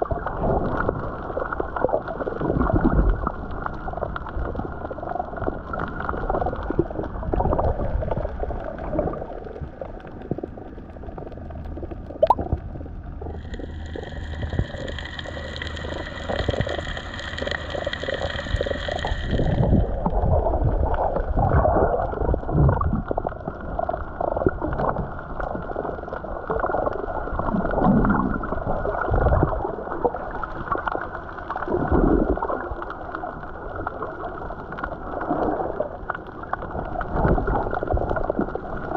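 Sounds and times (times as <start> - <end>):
muffled underwater rushing water: 0.0 - 38.9
high steady hiss or whine: 12.3 - 20.1.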